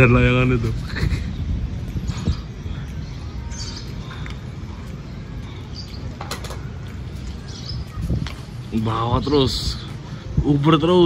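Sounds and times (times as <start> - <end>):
high bird chirps: 1.2 - 9.4.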